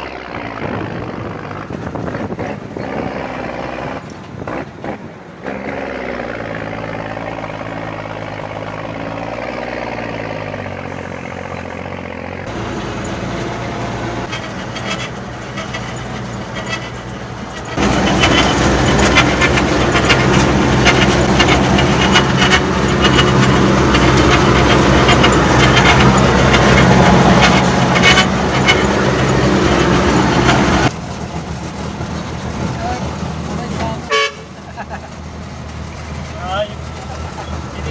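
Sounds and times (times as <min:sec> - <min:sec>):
heavy truck engine running: 0:00.0 - 0:37.9.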